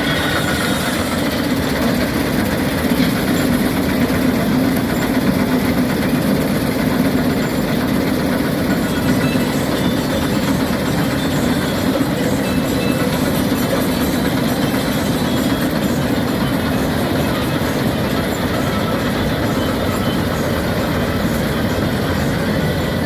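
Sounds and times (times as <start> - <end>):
combine harvester droning: 0.0 - 23.0.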